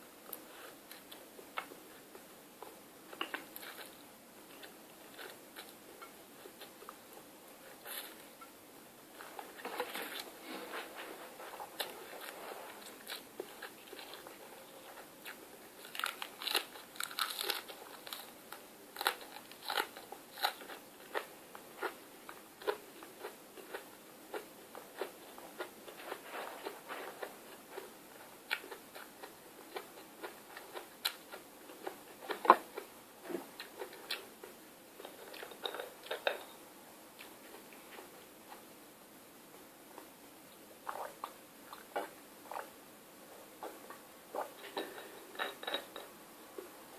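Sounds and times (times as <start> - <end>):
crunchy chewing: 0.3 - 8.3, 11.4 - 36.6.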